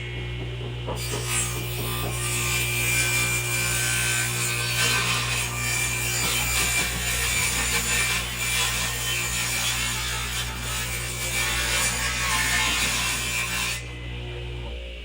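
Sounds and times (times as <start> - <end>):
steady low hum: 0.0 - 4.7, 13.8 - 15.0
tool working wood: 0.0 - 14.0.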